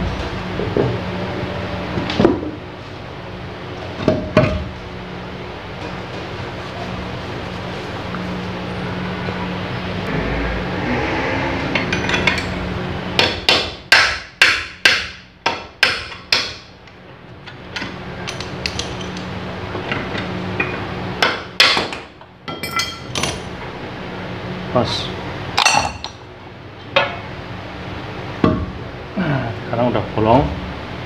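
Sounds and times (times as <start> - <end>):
hammer striking chisel: 13.2 - 16.7.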